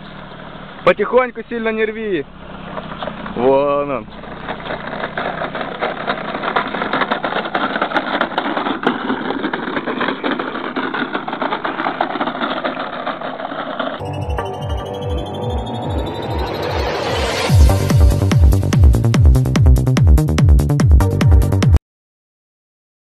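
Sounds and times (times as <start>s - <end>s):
car engine running: 0.0s - 21.7s
plastic toy truck clattering: 4.1s - 14.0s
electronic music with heavy beat: 14.0s - 21.8s.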